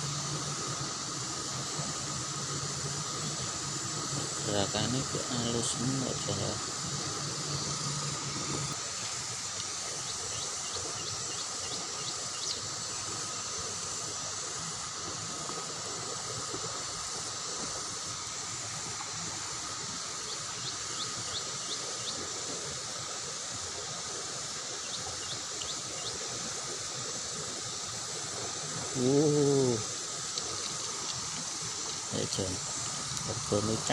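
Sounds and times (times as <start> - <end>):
river current rushing: 12.6 - 33.9.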